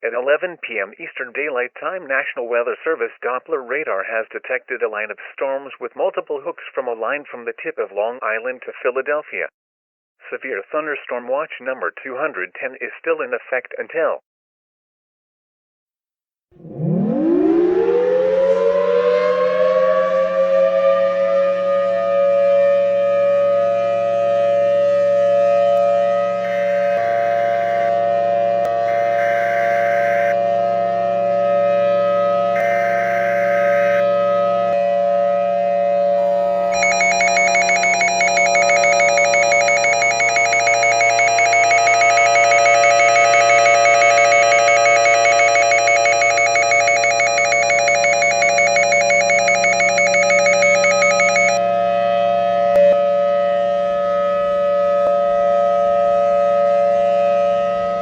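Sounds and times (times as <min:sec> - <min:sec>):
warning siren wailing: 0:16.6 - 0:58.0
fast-pulsing high ringing tone: 0:26.4 - 0:28.0, 0:28.8 - 0:30.4, 0:36.2 - 0:51.6
short high beeps: 0:26.5 - 0:27.9, 0:36.2 - 0:51.6.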